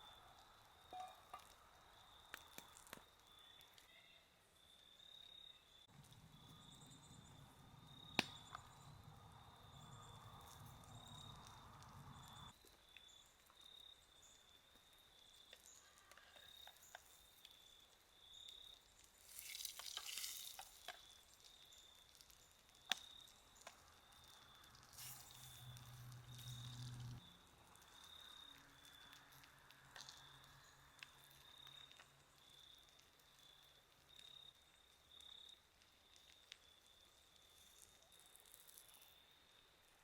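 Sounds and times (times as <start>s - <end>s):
insect trilling: 15.6s - 34.4s
food sizzling: 18.8s - 33.5s.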